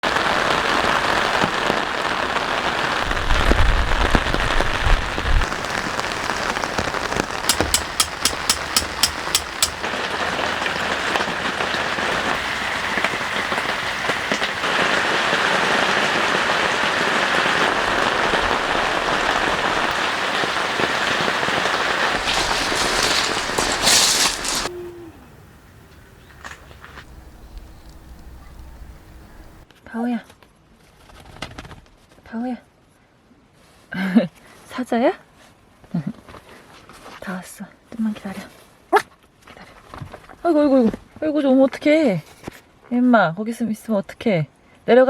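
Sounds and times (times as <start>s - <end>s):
heavy rain pouring: 0.0s - 24.7s
evenly spaced ticks: 7.4s - 9.9s.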